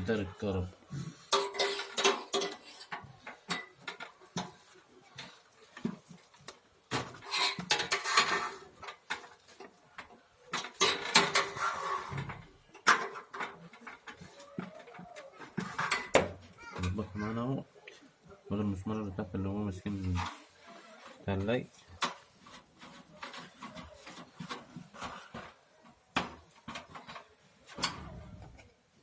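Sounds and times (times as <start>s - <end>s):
metal tools clinking: 1.3s - 4.5s.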